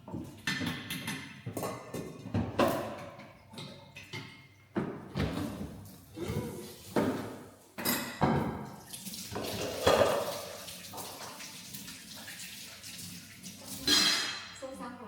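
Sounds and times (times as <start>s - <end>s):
water running into a sink: 6.1s - 7.4s, 8.2s - 14.4s.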